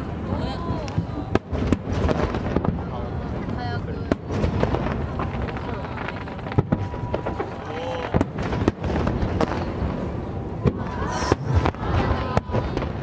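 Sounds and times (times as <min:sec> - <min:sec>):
fireworks bursting: 0:00.0 - 0:13.0
whistling rising fireworks: 0:04.2 - 0:13.0.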